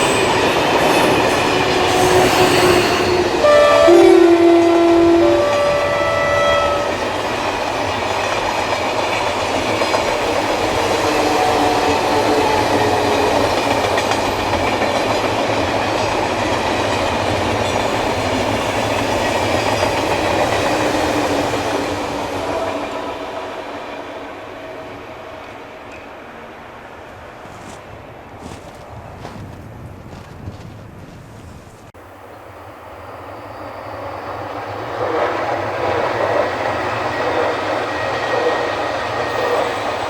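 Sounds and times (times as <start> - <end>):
train horn: 0.0 - 7.7, 10.2 - 13.8, 19.5 - 26.0, 34.7 - 40.0
train wheels clattering on rails: 6.9 - 23.2.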